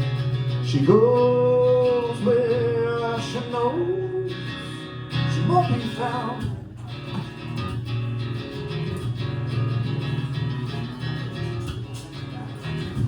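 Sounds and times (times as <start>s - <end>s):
electric guitar playing: 0.0s - 13.0s
person singing: 0.7s - 6.6s.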